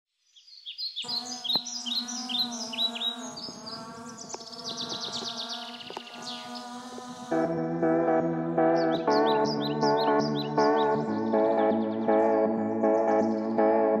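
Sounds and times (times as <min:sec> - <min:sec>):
birds chirping: 0:00.3 - 0:14.0
bird trill: 0:00.4 - 0:06.8, 0:08.7 - 0:13.5.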